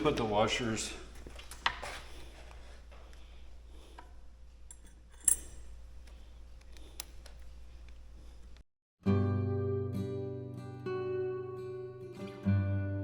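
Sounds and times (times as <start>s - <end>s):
sharp metallic clink: 4.7s - 5.8s.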